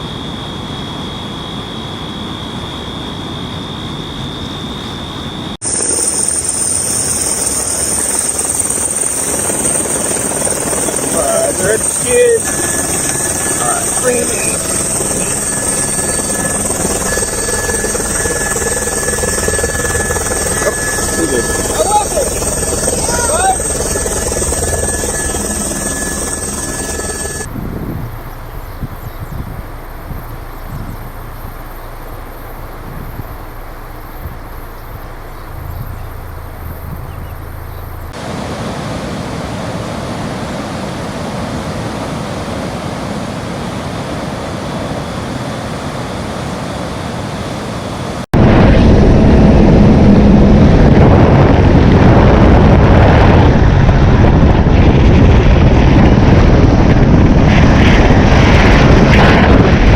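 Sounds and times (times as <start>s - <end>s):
wind buffeting the microphone: 8.7s - 38.4s, 48.4s - 59.9s
low engine-like rumble: 14.6s - 38.2s.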